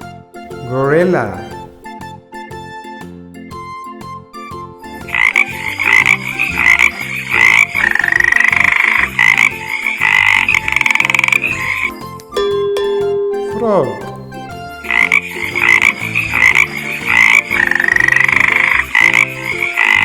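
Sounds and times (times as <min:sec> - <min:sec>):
quiet background music: 0:00.0 - 0:20.0
frog croaking and trilling: 0:05.0 - 0:12.1, 0:14.8 - 0:20.0.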